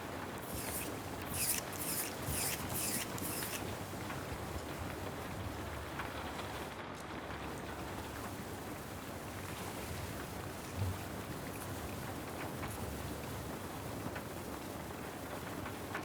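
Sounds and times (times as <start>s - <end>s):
steady rain hiss: 3.6s - 16.0s.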